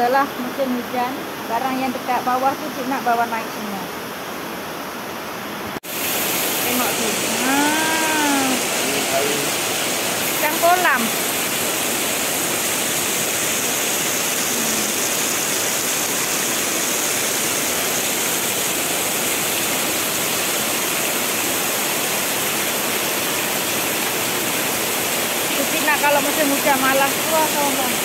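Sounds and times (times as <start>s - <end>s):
heavy rain on floodwater: 5.8s - 28.0s.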